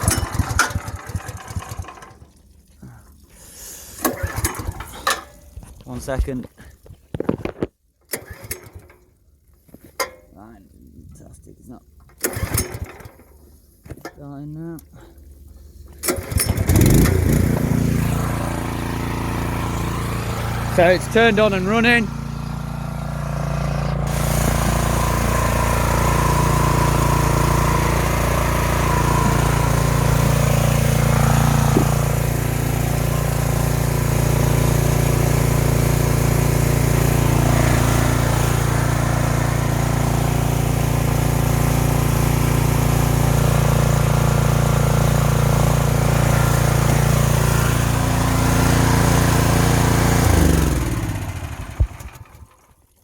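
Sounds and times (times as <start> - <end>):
pressure washer engine running: 0.0 - 2.4, 3.4 - 5.4, 16.0 - 53.0.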